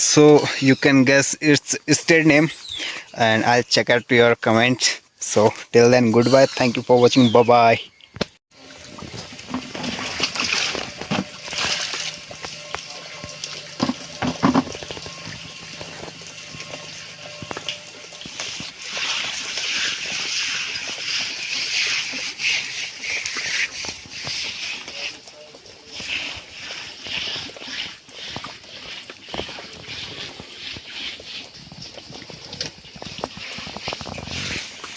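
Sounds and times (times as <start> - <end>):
running water splashing: 8.5 - 34.9.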